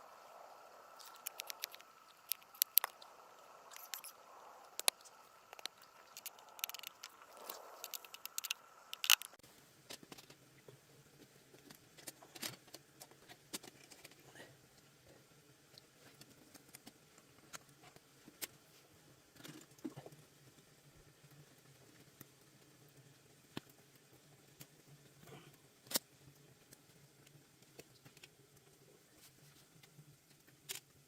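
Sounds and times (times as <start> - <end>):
faint steady tone: 0.0 - 9.6
sharp clicks and ticks: 1.0 - 9.4.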